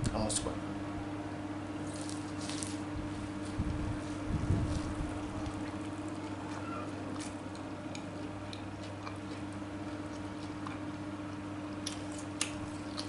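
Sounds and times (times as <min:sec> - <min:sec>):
steady low hum: 0:00.0 - 0:13.0
person chewing: 0:01.8 - 0:13.0.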